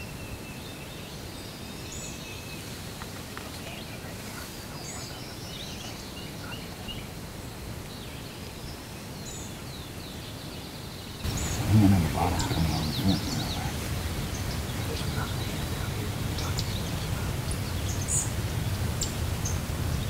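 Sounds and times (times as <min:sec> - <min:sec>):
low outdoor background rush: 0:00.0 - 0:20.0
songbird chirps: 0:00.0 - 0:20.0.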